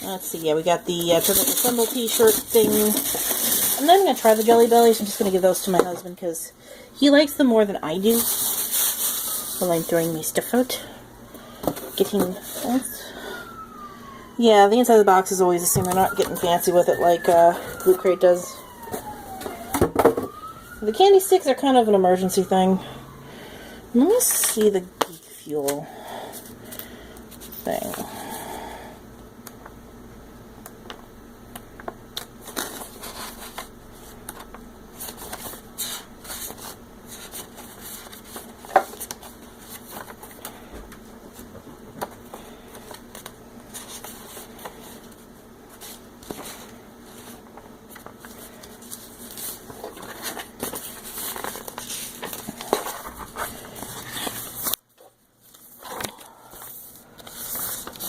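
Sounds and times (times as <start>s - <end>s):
paper rustling and crinkling: 0.0s - 5.9s, 8.0s - 10.6s, 15.6s - 19.7s, 32.2s - 40.7s, 41.3s - 58.0s.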